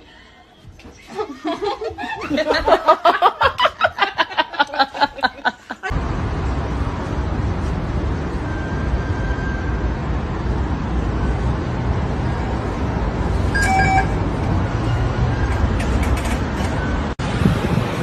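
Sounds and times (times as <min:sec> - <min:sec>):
person laughing hard: 0:01.2 - 0:05.9.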